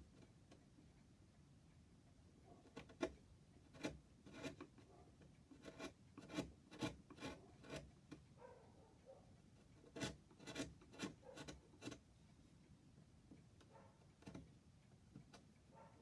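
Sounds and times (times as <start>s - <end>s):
hand rasping on wood: 2.7s - 4.8s, 5.5s - 8.0s, 9.6s - 12.0s.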